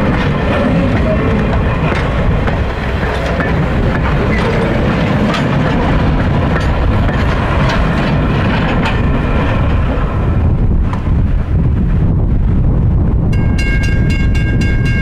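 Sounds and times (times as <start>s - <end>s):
train wheels clicking over joints: 0.0s - 10.2s
wind buffeting microphone: 0.0s - 15.0s.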